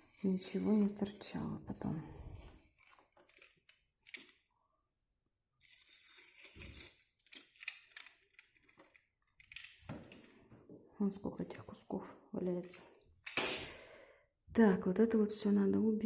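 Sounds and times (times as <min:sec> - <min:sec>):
knife scraping wallcovering: 0:05.6 - 0:07.7.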